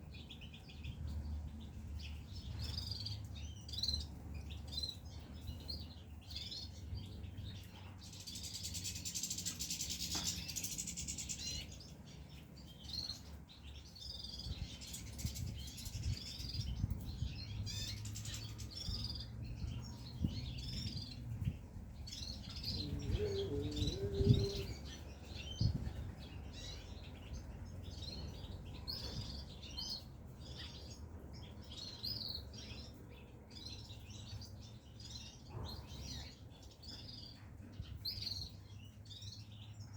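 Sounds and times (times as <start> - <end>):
finches chirping and twittering: 0.0 - 39.9.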